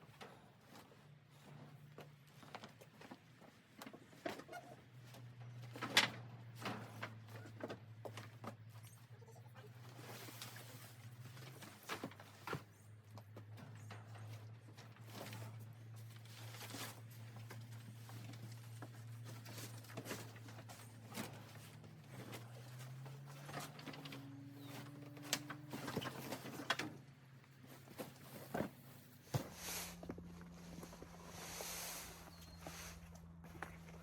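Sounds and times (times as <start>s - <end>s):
steady low hum: 27.3s - 34.0s.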